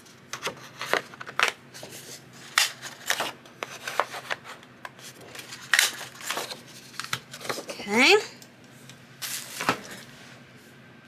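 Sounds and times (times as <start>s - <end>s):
paper rustling and sliding: 0.4s - 7.7s.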